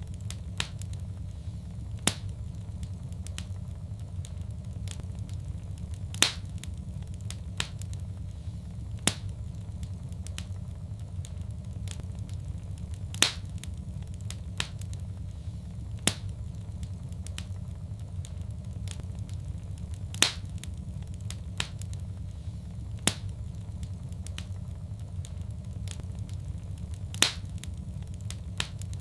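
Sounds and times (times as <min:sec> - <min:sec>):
low fire rumble: 0:00.0 - 0:29.0
sharp pops of fire: 0:00.0 - 0:29.0
wood fire crackling: 0:00.0 - 0:29.0.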